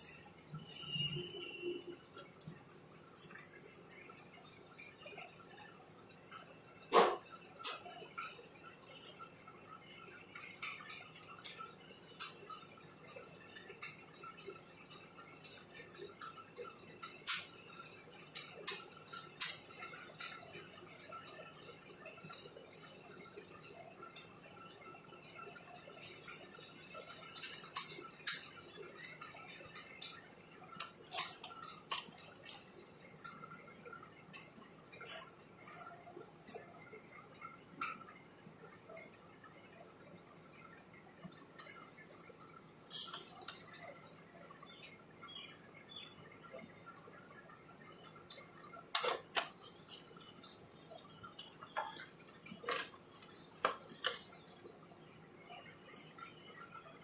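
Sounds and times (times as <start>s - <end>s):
small tools and phone parts clicking: 17.0s - 17.6s, 30.0s - 33.4s, 48.9s - 50.6s, 51.8s - 54.4s.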